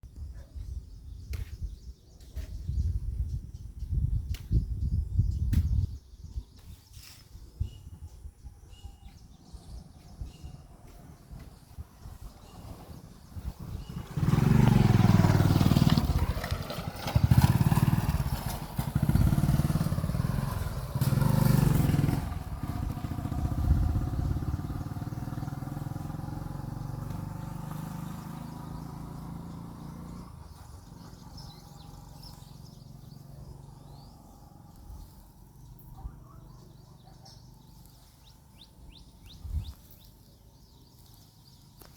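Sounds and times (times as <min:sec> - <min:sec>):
vehicle engine revving: 0:10.8 - 0:41.9.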